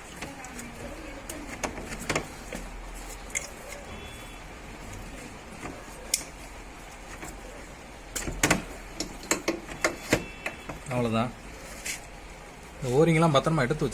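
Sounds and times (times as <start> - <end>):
hand tools clicking and tapping: 8.2 - 10.7.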